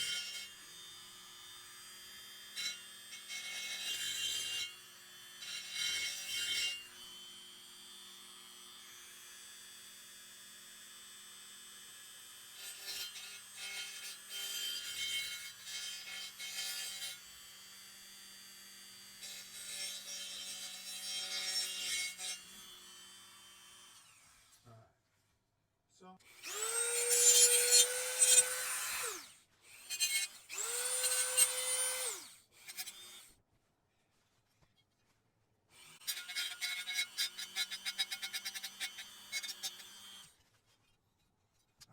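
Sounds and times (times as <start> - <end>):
rotary grinder whining: 26.3 - 33.3
metal scraping and rasping: 26.5 - 33.2, 35.9 - 41.0.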